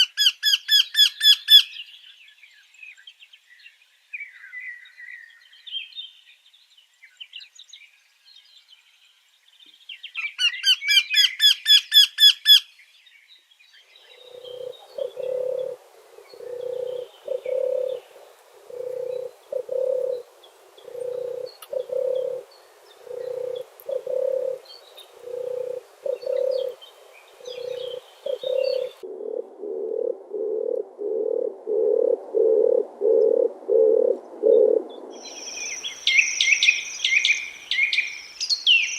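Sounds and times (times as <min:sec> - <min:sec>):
bird chirps: 0:09.6 - 0:18.1, 0:18.7 - 0:29.0, 0:34.5 - 0:38.9
low cooing call: 0:14.0 - 0:38.1.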